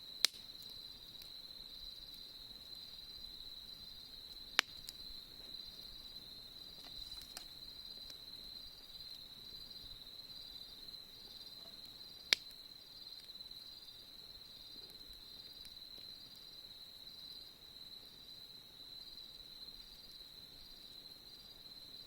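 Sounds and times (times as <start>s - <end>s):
campfire pops: 0.0s - 10.0s, 11.2s - 13.5s
crickets chirping: 0.0s - 22.0s.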